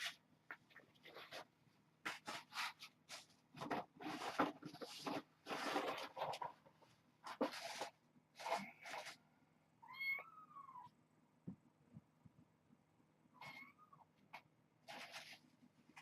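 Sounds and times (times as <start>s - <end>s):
scratchy scraping and rustling: 1.0s - 9.2s, 14.8s - 16.0s.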